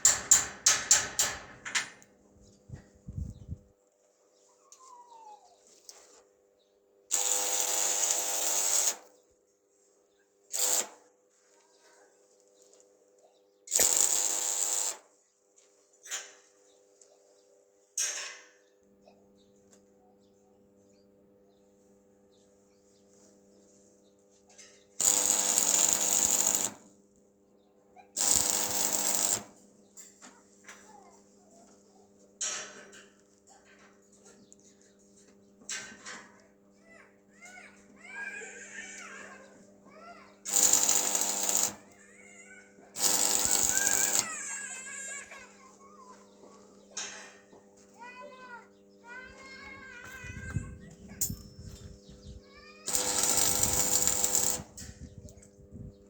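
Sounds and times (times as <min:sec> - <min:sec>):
power tool running: 0:07.1 - 0:09.0, 0:13.7 - 0:15.0, 0:25.0 - 0:26.8, 0:28.2 - 0:29.5, 0:40.5 - 0:41.9, 0:43.0 - 0:44.7, 0:52.9 - 0:54.8.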